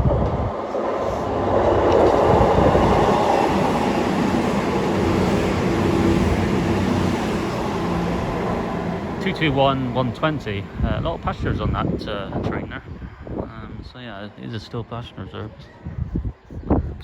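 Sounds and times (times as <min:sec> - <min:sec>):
wheels rumbling on rails: 0:00.0 - 0:11.9
diesel train engines droning: 0:00.2 - 0:12.7.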